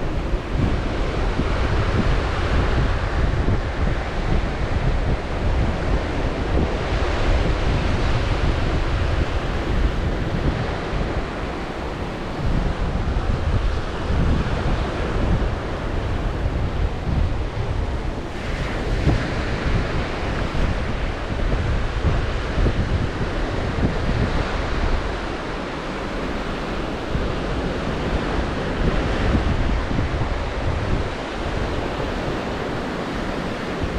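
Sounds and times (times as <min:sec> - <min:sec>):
surf breaking on shore: 0:00.0 - 0:33.9
wind buffeting microphone: 0:00.0 - 0:33.9
wave rushing in: 0:07.4 - 0:33.9.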